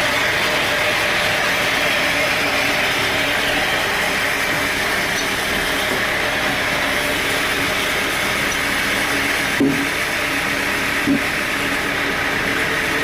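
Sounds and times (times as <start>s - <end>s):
constant hum: 0.0s - 13.0s
sawmill machinery whirring: 0.0s - 13.0s.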